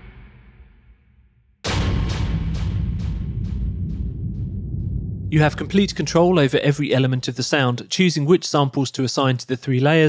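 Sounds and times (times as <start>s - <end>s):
heavy low boom: 1.6s - 7.1s.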